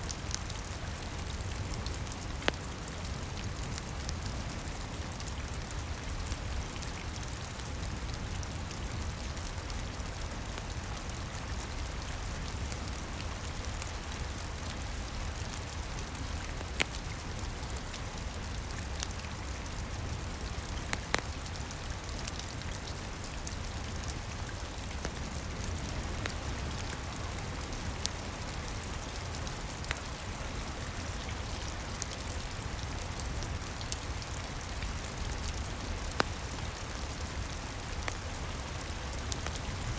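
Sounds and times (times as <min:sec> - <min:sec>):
rain pattering on a roof: 0:00.0 - 0:39.9
wood fire crackling pops: 0:20.8 - 0:21.4.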